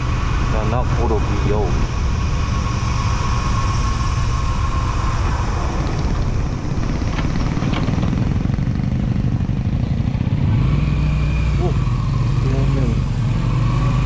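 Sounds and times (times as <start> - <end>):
wind noise on microphone: 0.0 - 10.9
motorcycle engine running: 4.8 - 14.0.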